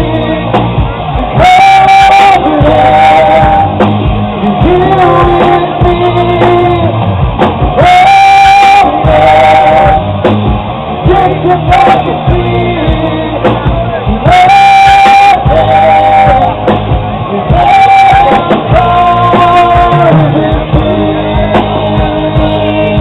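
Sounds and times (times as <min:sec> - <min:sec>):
drum hits: 0:00.0 - 0:23.0
live rock band playing: 0:00.0 - 0:23.0
singing with long held notes: 0:00.0 - 0:23.0.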